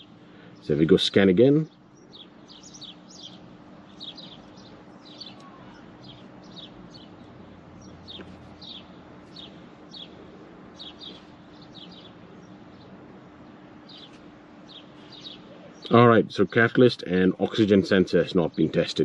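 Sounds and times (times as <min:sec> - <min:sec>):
faint low hum: 0:00.0 - 0:19.0
small bird chirping: 0:01.6 - 0:16.0.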